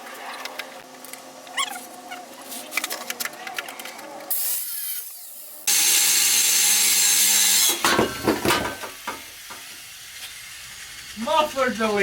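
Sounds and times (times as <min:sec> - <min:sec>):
angle grinder cutting metal pipe: 0:04.3 - 0:12.0.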